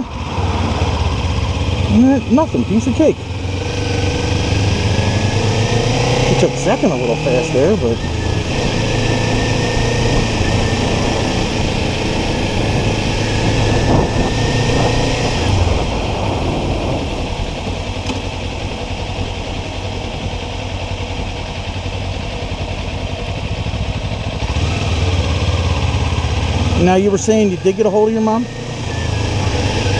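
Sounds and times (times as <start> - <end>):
motorcycle engine running: 0.0 - 29.9
wind noise over helmet: 7.9 - 18.8.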